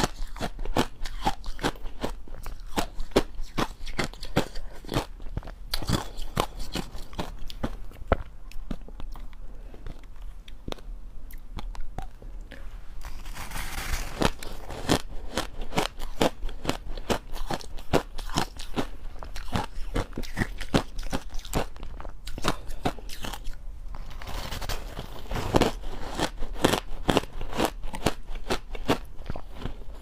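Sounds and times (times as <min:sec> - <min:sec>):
crushed ice being chewed: 0:00.0 - 0:12.2, 0:13.0 - 0:30.0.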